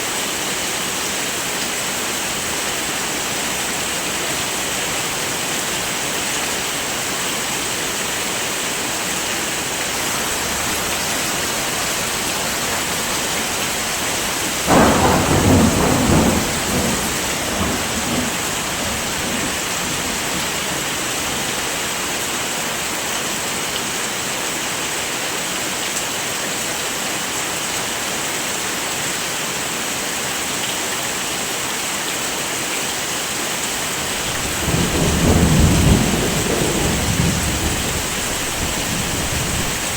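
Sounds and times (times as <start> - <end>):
heavy rain falling: 0.0 - 39.9
thunder clap rumbling: 9.6 - 21.0, 34.0 - 39.9.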